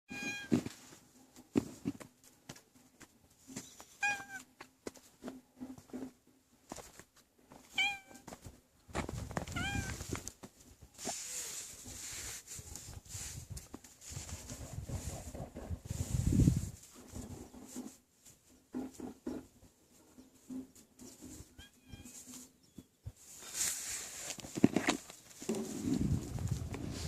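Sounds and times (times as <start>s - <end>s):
cat meowing: 4.0s - 4.4s, 7.8s - 8.2s, 9.5s - 10.0s.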